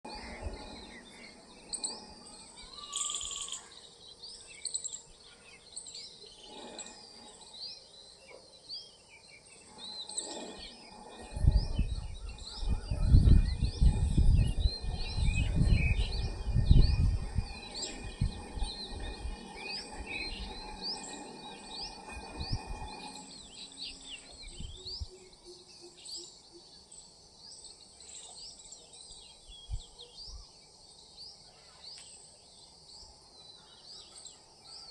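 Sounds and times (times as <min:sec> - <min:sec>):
small birds chirping: 0:00.0 - 0:34.9
high-pitched insect drone: 0:00.1 - 0:05.1, 0:05.7 - 0:08.2, 0:09.5 - 0:27.4
loud low rumble: 0:10.8 - 0:21.0.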